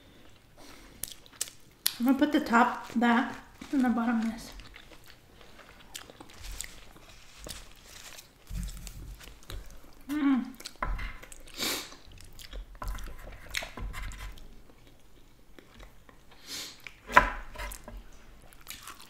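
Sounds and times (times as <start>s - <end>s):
chewing food: 0.2s - 13.8s, 17.7s - 19.0s.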